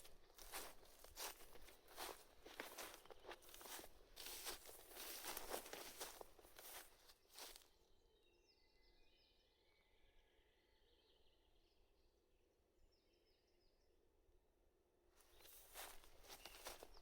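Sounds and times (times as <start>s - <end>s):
faint birdsong: 0.0s - 14.4s, 15.2s - 17.0s.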